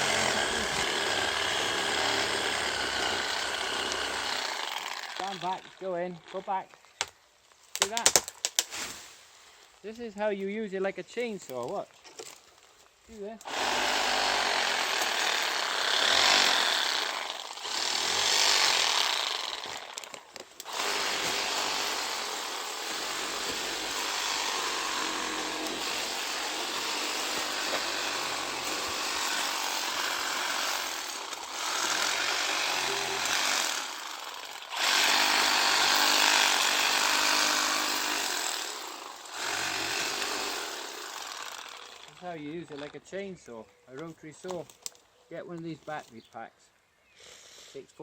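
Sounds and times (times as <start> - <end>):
rotary saw cutting: 0.0 - 6.4, 13.4 - 42.9.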